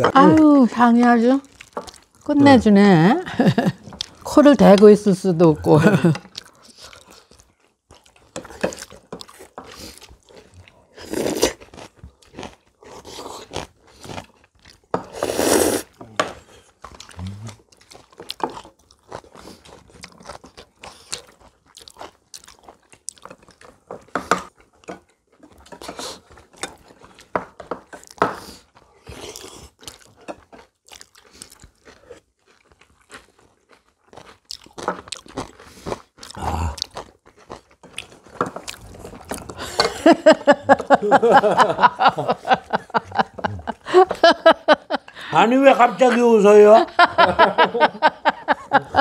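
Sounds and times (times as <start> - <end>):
chewing and crunching food: 0.0 - 44.0
people laughing: 3.2 - 3.8, 39.6 - 49.0.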